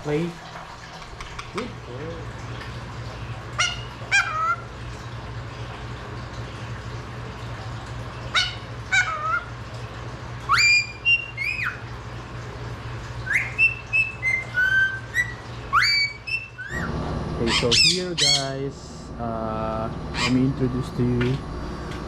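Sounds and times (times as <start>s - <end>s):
steady low hum: 0.0s - 22.0s
parakeet whistled calls: 10.5s - 11.8s, 13.2s - 18.6s, 20.1s - 20.4s.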